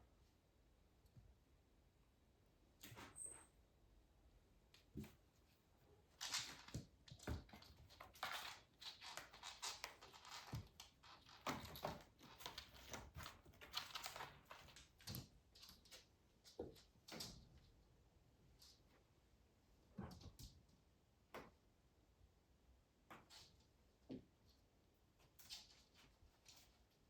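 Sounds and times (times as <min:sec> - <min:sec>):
kittens tapping and scrabbling: 0:06.0 - 0:17.8.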